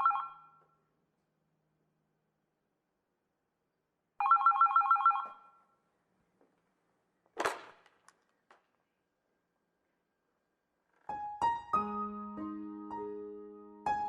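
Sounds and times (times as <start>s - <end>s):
electronic telephone ring: 0.0s - 0.6s, 4.2s - 5.5s.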